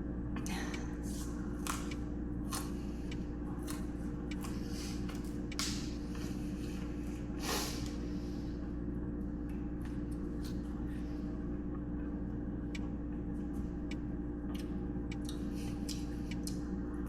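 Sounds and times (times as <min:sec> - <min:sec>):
low hum: 0:00.0 - 0:17.0
person chewing crunchy food: 0:01.0 - 0:07.3.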